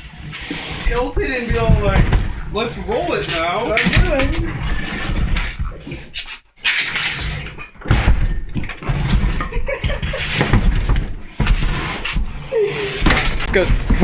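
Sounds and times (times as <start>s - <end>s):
refrigerator scraping across floor: 0.0s - 14.0s
knocks and thuds: 0.8s - 2.6s, 13.0s - 14.0s.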